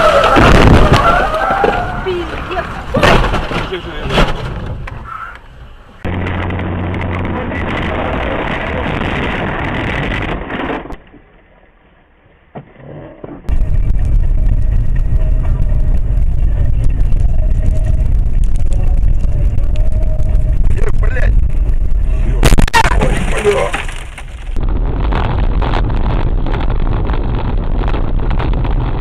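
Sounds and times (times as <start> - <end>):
road noise: 0.0 - 10.3, 13.5 - 29.0
car engine: 2.2 - 9.1
loud low rumble: 6.0 - 10.5, 13.5 - 23.4, 24.4 - 29.0.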